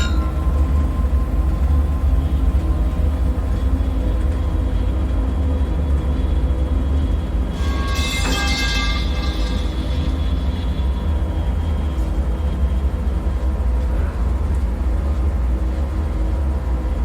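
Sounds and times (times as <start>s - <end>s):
deep rumbling drone: 0.0s - 13.4s
faint constant hum: 0.0s - 17.0s.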